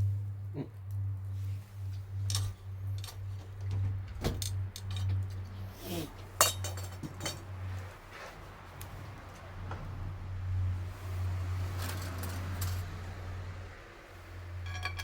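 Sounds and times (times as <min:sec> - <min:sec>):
low hum: 0:00.0 - 0:15.0
tableware clinking: 0:14.6 - 0:15.0.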